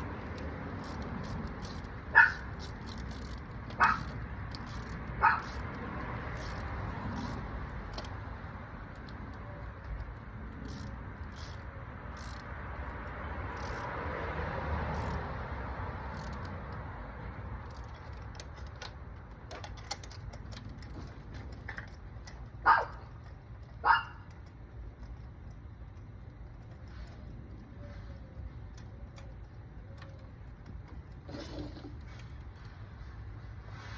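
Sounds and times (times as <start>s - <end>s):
steady background noise: 0.0s - 33.9s
dog barking: 2.2s - 2.5s, 3.8s - 4.0s, 5.2s - 5.5s, 22.6s - 23.0s, 23.8s - 24.2s.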